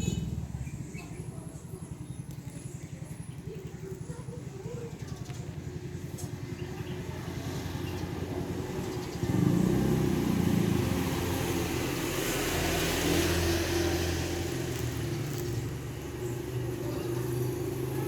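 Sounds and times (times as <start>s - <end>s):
vehicle engine passing: 6.8s - 18.0s.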